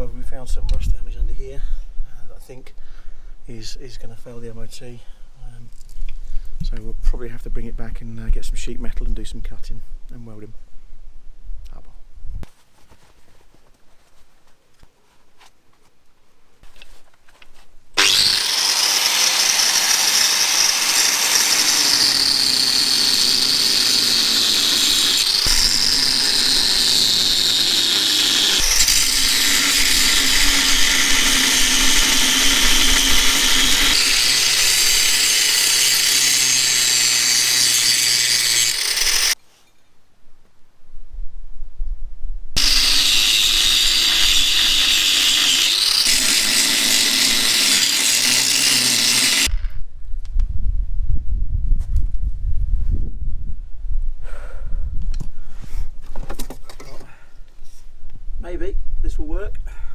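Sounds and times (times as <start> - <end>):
angle grinder cutting steel bolt: 18.0 - 39.4, 42.6 - 49.7.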